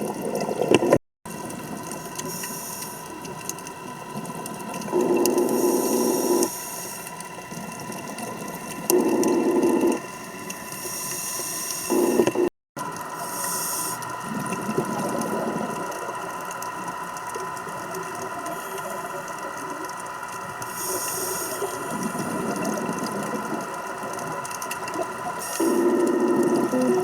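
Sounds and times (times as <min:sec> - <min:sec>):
exhaled bubbles rumbling: 0:00.0 - 0:02.3, 0:02.9 - 0:06.5, 0:07.2 - 0:10.8, 0:11.8 - 0:13.2, 0:14.0 - 0:27.0
steady hum: 0:00.4 - 0:27.0
regulator inhalation hiss: 0:02.2 - 0:03.1, 0:05.0 - 0:07.1, 0:10.7 - 0:12.5, 0:13.2 - 0:14.4, 0:20.7 - 0:22.5, 0:25.4 - 0:27.0.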